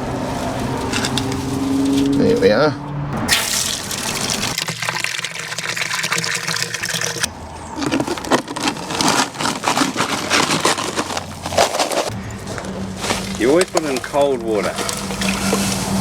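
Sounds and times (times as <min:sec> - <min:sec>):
water gushing from a tap: 0:03.4 - 0:07.3, 0:14.6 - 0:16.0.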